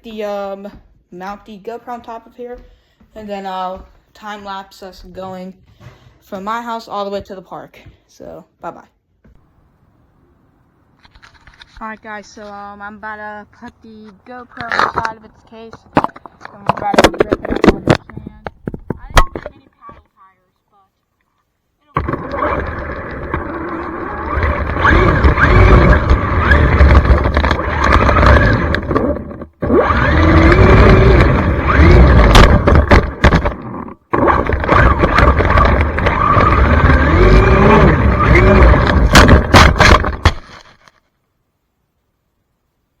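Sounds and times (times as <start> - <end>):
electric motor whine: 22.0 - 40.4
rumble of tyres and wind: 22.1 - 40.2.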